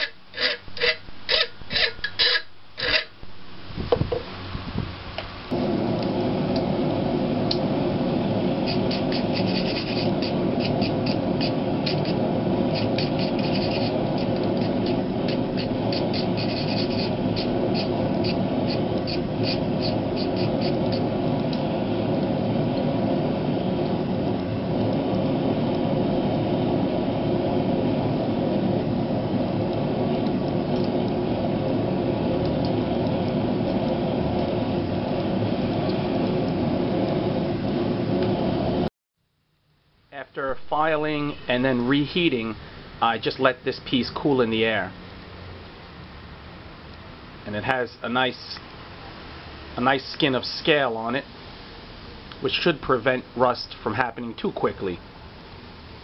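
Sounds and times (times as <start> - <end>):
hand file rasping on steel: 0.0 - 3.1, 8.7 - 11.2, 15.9 - 20.8
loud steady rushing noise: 3.3 - 38.9.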